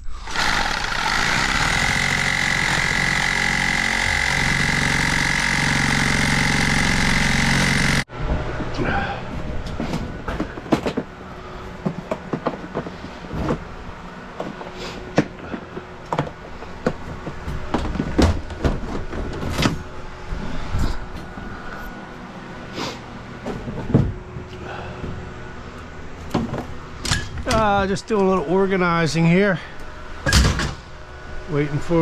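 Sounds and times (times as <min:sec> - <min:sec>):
faint engine hum: 0:07.0 - 0:32.0.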